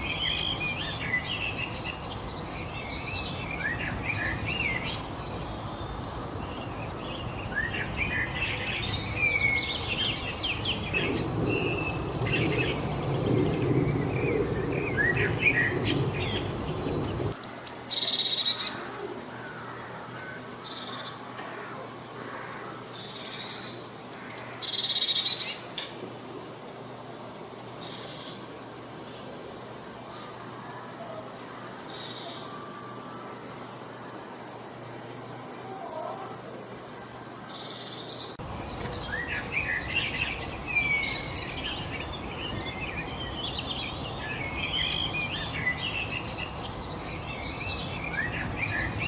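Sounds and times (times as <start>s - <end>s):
background hiss: 0.0s - 49.0s
wild birds singing and chirping: 0.0s - 49.0s
very high bird chirps: 36.8s - 49.0s.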